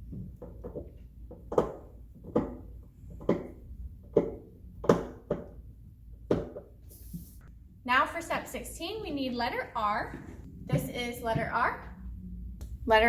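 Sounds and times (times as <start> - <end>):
plastic parts knocking and clicking: 0.0 - 5.6, 6.2 - 6.8.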